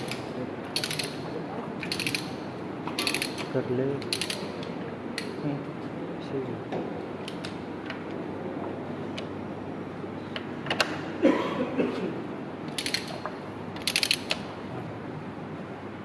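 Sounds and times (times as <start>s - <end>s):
metallic clicks: 1.8s - 2.3s, 12.7s - 13.2s, 13.8s - 14.4s
quick ratcheting rattles: 1.8s - 2.3s, 3.0s - 3.5s, 12.7s - 13.2s, 13.8s - 14.5s.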